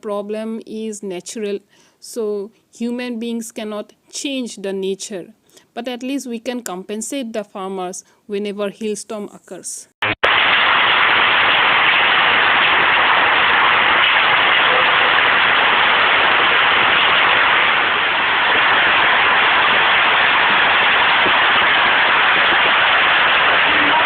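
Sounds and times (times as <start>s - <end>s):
heavy rain falling: 10.0s - 24.0s.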